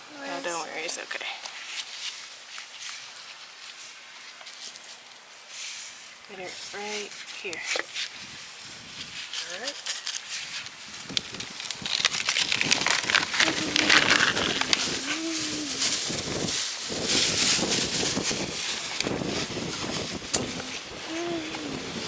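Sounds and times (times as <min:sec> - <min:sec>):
soil scraped by hand: 0:01.6 - 0:22.0
faint low call: 0:13.4 - 0:16.1.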